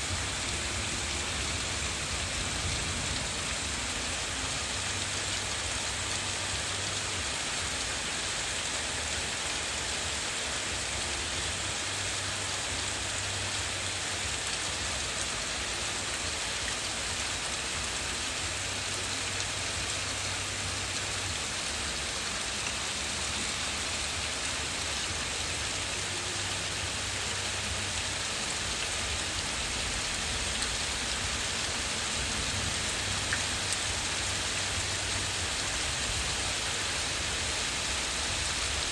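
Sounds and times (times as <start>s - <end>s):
low thunder rumble: 0.0s - 6.1s
heavy rain hissing on surfaces: 0.0s - 38.9s.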